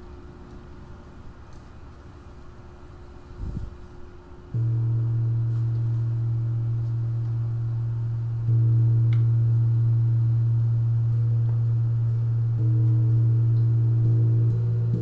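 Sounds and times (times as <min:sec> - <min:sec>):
singing bowl tone: 0:04.6 - 0:15.0.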